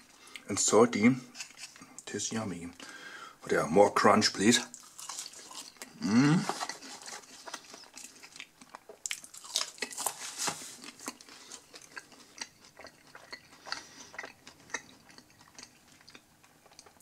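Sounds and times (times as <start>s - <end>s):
person chewing crunchy food: 4.7s - 17.0s.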